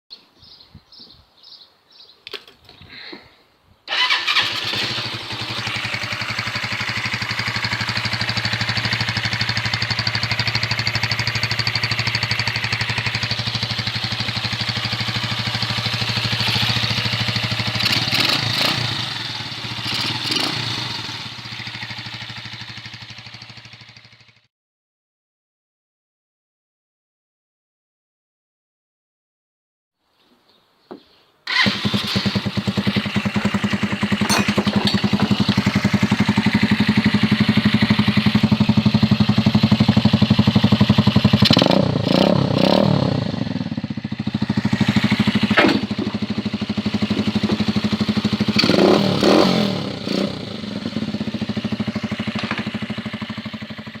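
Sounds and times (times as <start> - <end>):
motorcycle starting and idling: 3.9 - 24.5, 31.5 - 54.0.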